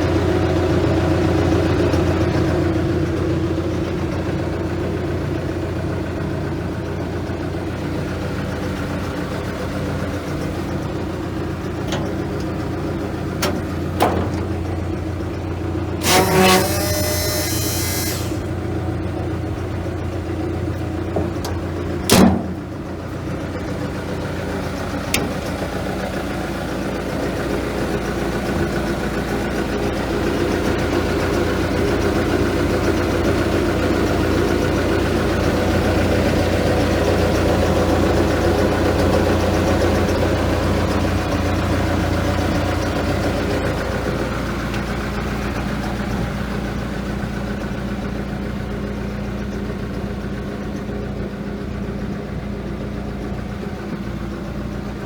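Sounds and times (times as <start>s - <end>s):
excavator diesel engine running: 0.0s - 55.0s
short squeal with hiss: 16.0s - 18.6s.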